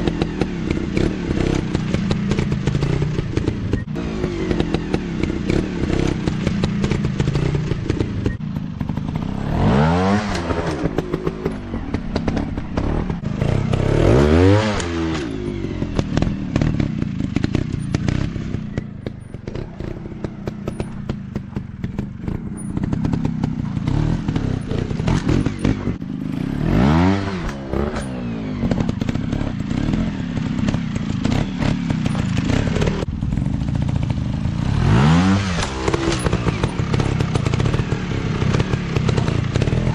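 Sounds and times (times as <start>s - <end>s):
dirt bike engine revving: 0.0s - 39.9s
clatter and knocks: 35.6s - 39.9s.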